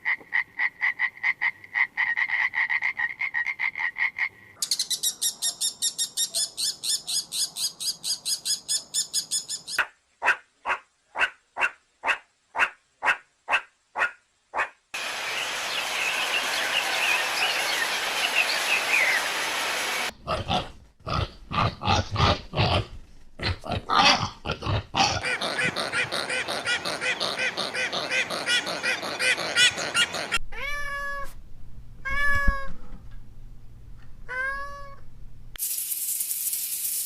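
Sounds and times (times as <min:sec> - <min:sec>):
chirps: 0:04.6 - 0:09.8
animal calls: 0:23.4 - 0:30.4.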